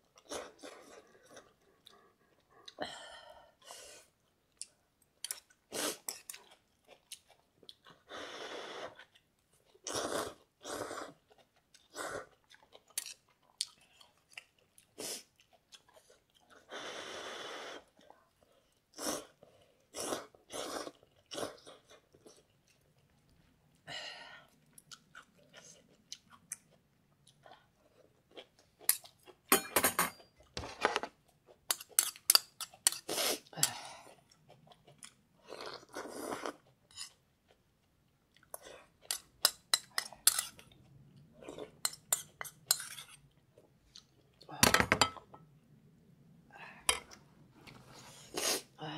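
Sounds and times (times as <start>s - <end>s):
person slurping noodles and chewing: 0.1s - 2.8s, 5.3s - 23.0s, 31.5s - 37.6s, 47.1s - 48.8s.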